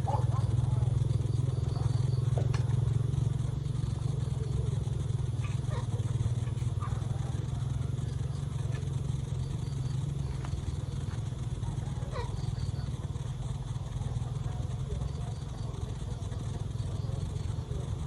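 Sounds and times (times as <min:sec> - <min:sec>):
small engine droning: 0:00.0 - 0:18.0
faint clicks: 0:01.8 - 0:02.9, 0:10.2 - 0:11.3
faint animal or bird calls: 0:05.2 - 0:13.2.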